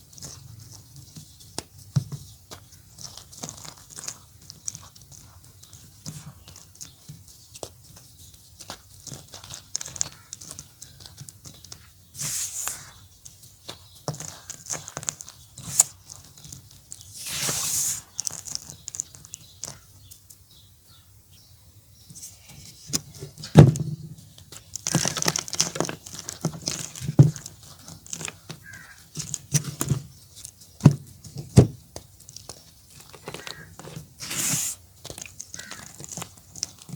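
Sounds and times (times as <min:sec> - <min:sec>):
chalk crumbling and crunching: 0:00.1 - 0:20.0, 0:24.3 - 0:36.9
powdery scraping: 0:08.6 - 0:19.8, 0:32.6 - 0:36.9.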